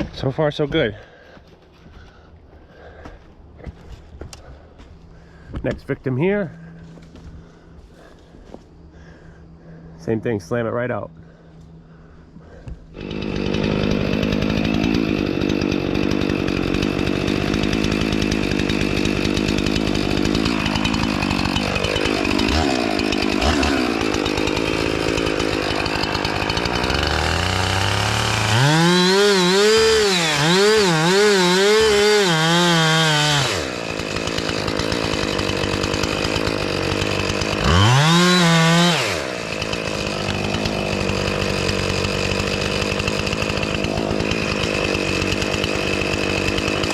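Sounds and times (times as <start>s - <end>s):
chainsaw cutting a tree: 12.4s - 46.9s.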